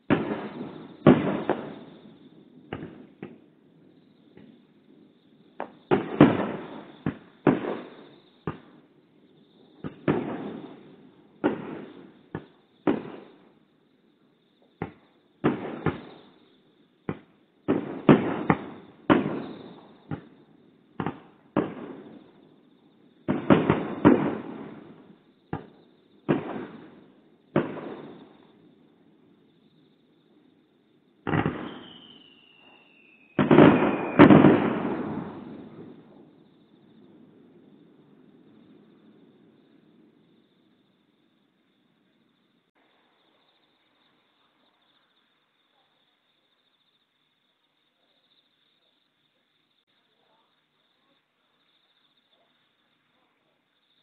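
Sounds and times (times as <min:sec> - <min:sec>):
fireworks bursting with echo: 0:00.0 - 0:13.7, 0:14.6 - 0:40.8.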